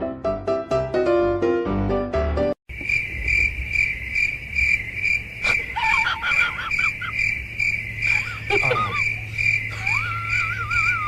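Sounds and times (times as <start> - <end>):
piano-like music: 0.0 - 2.6
high chirping: 2.7 - 11.0.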